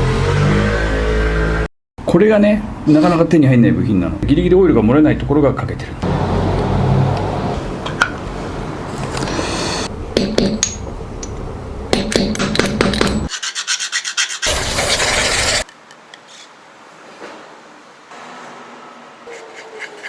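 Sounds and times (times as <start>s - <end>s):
loud steady rasp: 13.3s - 15.6s, 19.3s - 20.0s
file scraping metal part: 13.3s - 15.7s, 19.3s - 20.0s.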